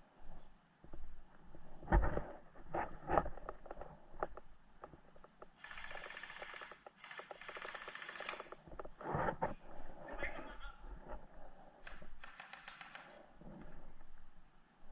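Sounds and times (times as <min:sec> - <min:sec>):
airsoft gun firing full-auto bursts: 0:05.6 - 0:08.5, 0:12.2 - 0:13.2.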